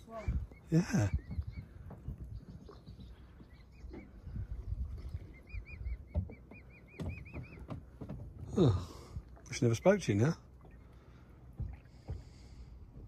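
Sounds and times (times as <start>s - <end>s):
bird chirping: 0.3s - 7.8s.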